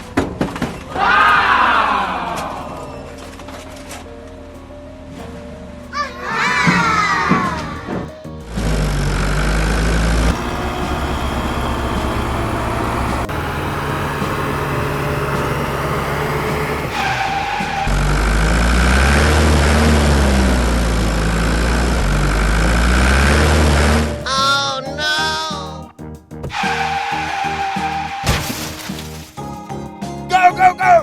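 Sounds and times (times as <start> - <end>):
heavy vehicle engine running: 8.4 - 24.3.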